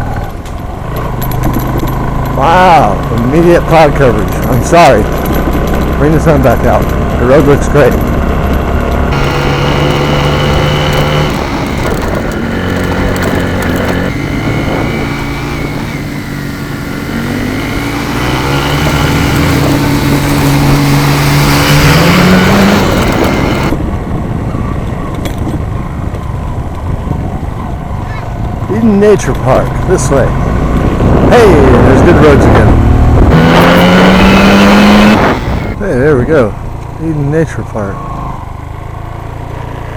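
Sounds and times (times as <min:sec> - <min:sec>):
road noise: 0:00.0 - 0:39.9
vehicle engine running: 0:01.0 - 0:23.8, 0:29.3 - 0:35.8.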